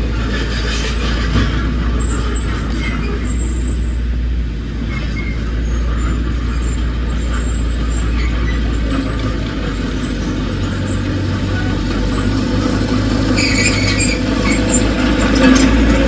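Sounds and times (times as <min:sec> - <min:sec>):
heavy diesel machinery running: 0:00.0 - 0:16.0.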